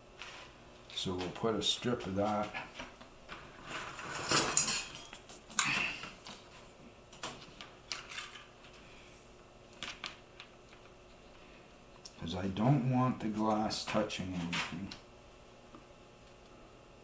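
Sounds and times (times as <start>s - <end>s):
rustling and scraping materials: 0.2s - 1.4s, 2.2s - 5.0s, 7.4s - 10.1s, 14.3s - 14.9s.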